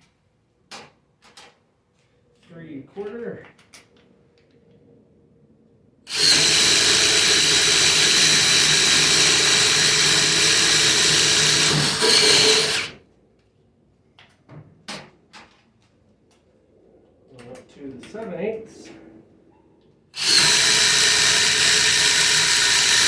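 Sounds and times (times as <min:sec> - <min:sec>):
impact driver drilling wood: 0:06.1 - 0:13.0, 0:20.2 - 0:23.0.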